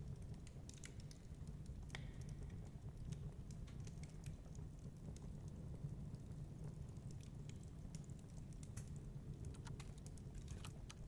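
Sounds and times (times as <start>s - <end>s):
fireplace crackling and popping: 0.0s - 11.0s
low fire rumble: 0.0s - 11.0s.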